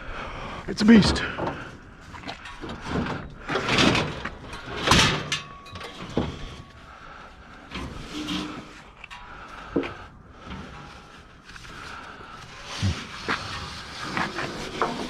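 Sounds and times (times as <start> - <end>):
heavy scrap scraping and knocking: 0.7 - 7.0, 7.6 - 15.0.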